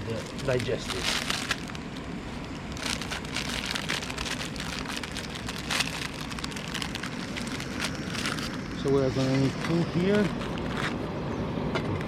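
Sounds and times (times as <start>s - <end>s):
campfire crackling: 0.0s - 11.0s.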